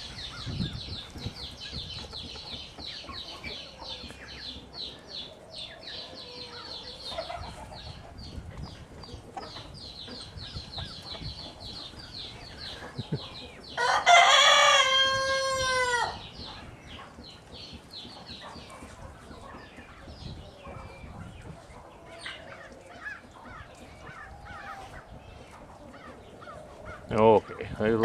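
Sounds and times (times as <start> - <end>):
small birds chirping: 0.0 - 28.0
rooster crowing: 13.8 - 16.3.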